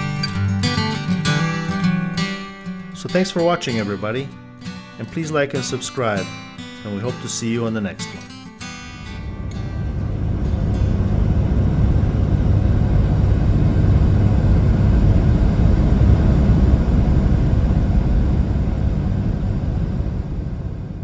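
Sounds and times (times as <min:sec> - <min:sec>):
vehicle engine and road rumble: 0:08.9 - 0:21.0.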